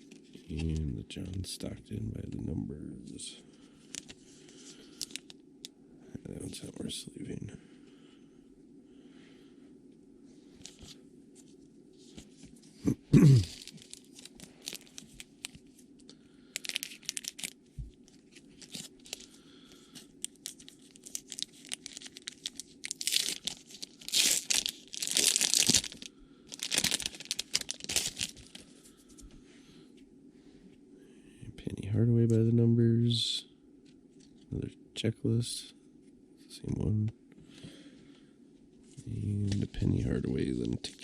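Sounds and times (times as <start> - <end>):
faint steady hum: 0.0 - 41.0
wrapper tearing and crinkling: 5.0 - 5.3, 13.2 - 15.6, 16.6 - 17.6, 18.2 - 19.3, 20.2 - 28.6.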